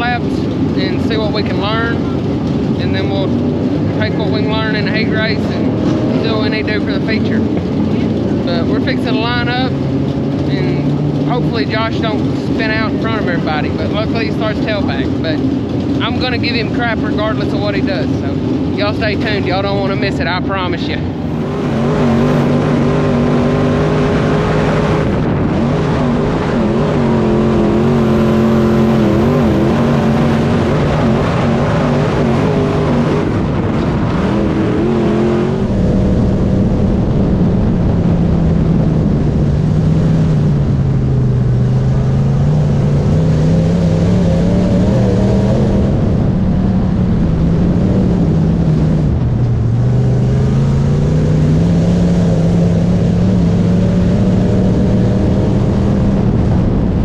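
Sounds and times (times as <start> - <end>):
race car engines: 0.0 - 57.0.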